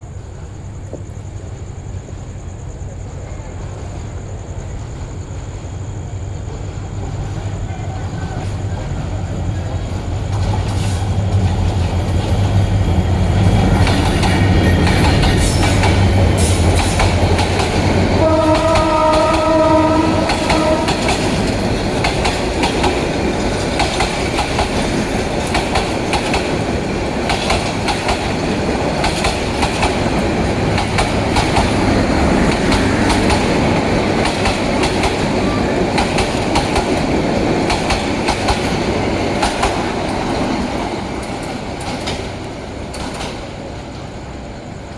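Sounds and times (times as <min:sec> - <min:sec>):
diesel locomotive humming: 0:00.0 - 0:44.9
train coaches clattering over rails: 0:00.0 - 0:44.9
train horn blast: 0:18.1 - 0:21.7.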